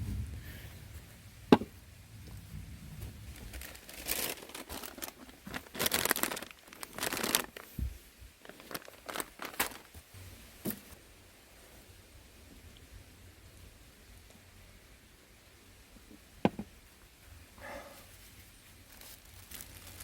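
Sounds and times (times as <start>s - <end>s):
crinkly material tearing and crumpling: 3.0s - 10.1s, 18.1s - 20.0s.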